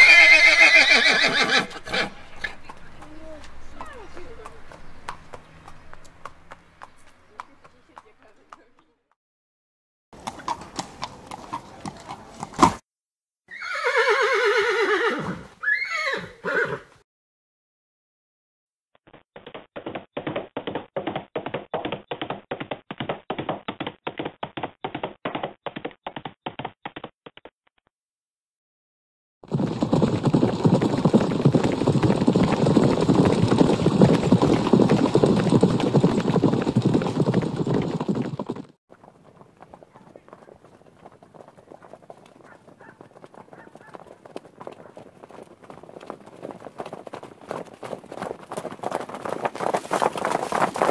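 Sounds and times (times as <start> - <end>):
horse whinnying: 0.0 - 2.5, 13.5 - 16.9
horse hooves stepping: 1.4 - 8.9, 19.1 - 27.5, 29.5 - 50.9.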